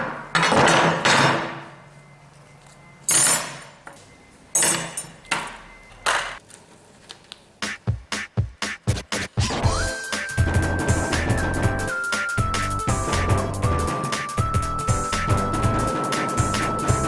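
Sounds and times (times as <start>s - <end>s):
hammer clanging on steel: 3.1s - 3.9s, 4.6s - 6.4s, 10.1s - 17.0s.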